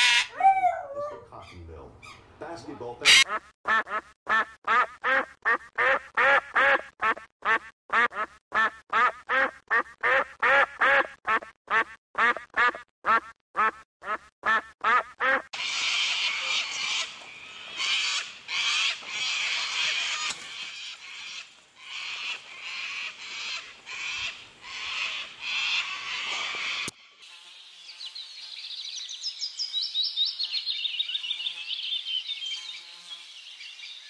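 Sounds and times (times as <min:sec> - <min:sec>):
bird calling: 0:15.6 - 0:26.9.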